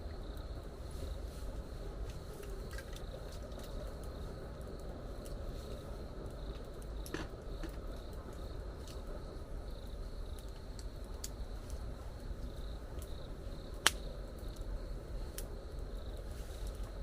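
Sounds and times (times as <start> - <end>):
insects chirping: 0.0 - 17.0
faint ticks: 12.4 - 14.7, 15.3 - 17.0.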